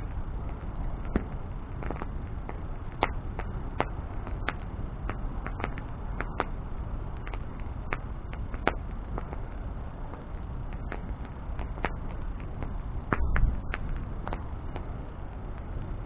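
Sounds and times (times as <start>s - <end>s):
bonfire crackling: 0.0s - 16.0s.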